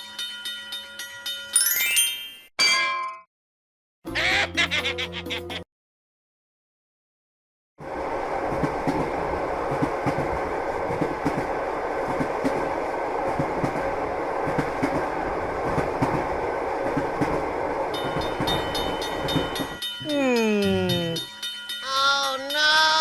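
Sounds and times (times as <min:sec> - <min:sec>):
train rumbling on rails: 0:07.8 - 0:20.0.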